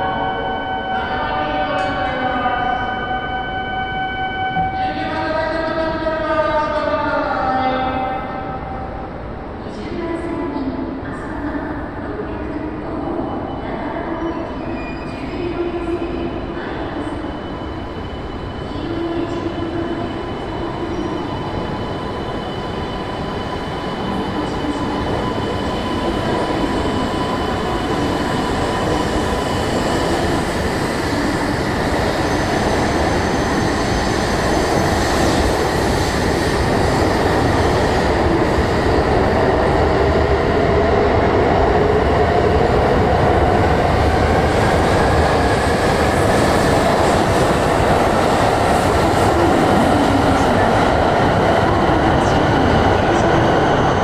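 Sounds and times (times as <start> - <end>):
rising train whine: 0.0 - 54.0
train wheels on rail: 16.1 - 54.0.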